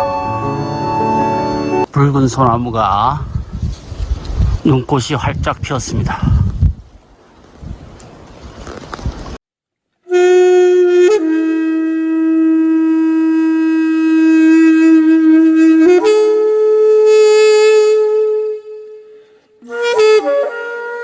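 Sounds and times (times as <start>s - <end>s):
solo wind instrument long notes: 0.0s - 1.9s, 10.0s - 21.0s.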